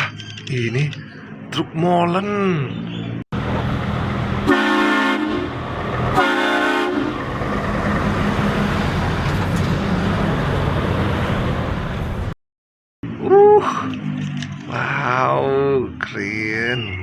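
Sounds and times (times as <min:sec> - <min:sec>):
rumble of running train: 0:03.4 - 0:12.3
train horn blasts: 0:04.4 - 0:07.3.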